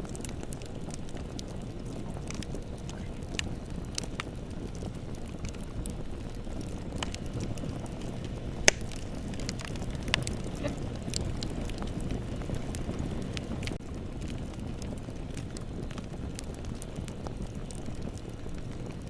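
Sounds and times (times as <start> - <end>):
roar of bonfire flames: 0.0 - 19.0
wood crackling: 0.0 - 19.0
loud sharp pop: 8.7 - 8.9.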